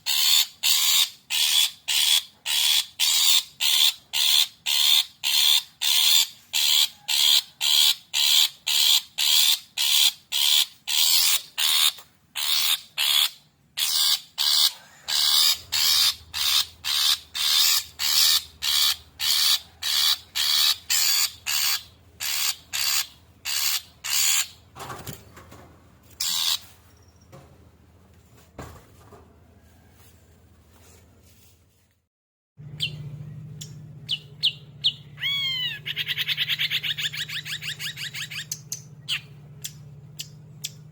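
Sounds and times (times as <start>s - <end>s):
shrike harsh rasping calls: 0.0s - 24.6s, 33.6s - 40.8s.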